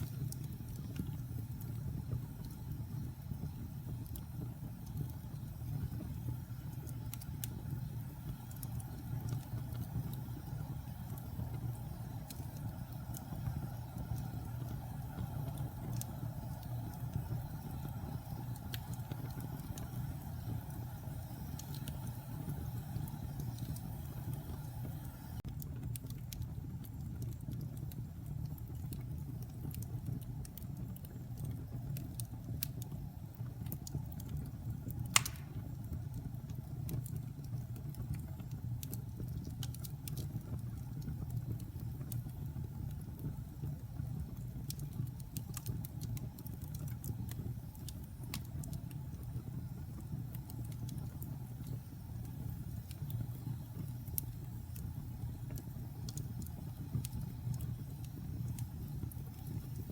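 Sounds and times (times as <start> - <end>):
burning wood crackling and popping: 0.0 - 59.9
fireplace flames rumbling: 0.0 - 59.9.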